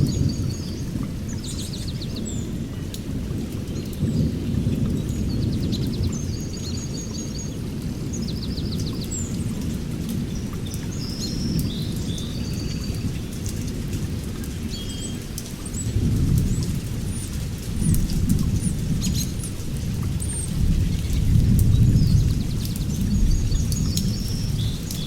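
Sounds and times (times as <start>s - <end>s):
birds chirping and trilling: 14.7s - 25.0s.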